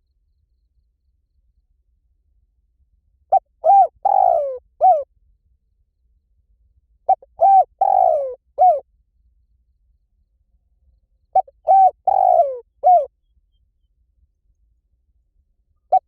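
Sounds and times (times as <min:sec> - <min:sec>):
dove cooing: 0:03.3 - 0:05.1, 0:07.1 - 0:08.8, 0:11.3 - 0:13.1.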